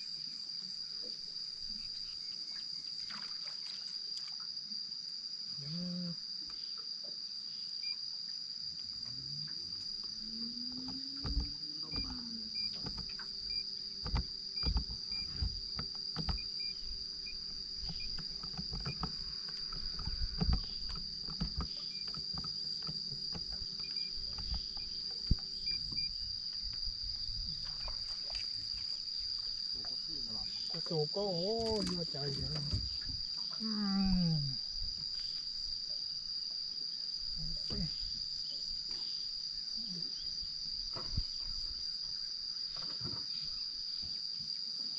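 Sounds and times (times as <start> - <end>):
crickets chirping: 0.0 - 44.9
knocks and clunks: 10.8 - 28.4, 30.6 - 33.3.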